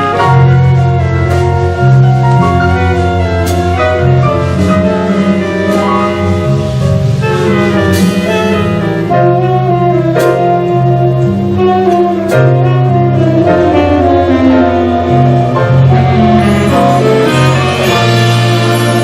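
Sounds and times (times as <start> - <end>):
saxophones and horns: 0.0 - 19.0
walking bass: 0.0 - 19.0.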